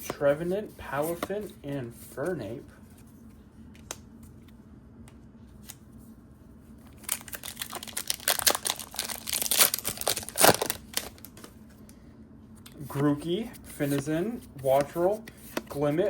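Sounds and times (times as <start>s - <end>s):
foil wrapper tearing and crinkling: 6.9s - 11.5s.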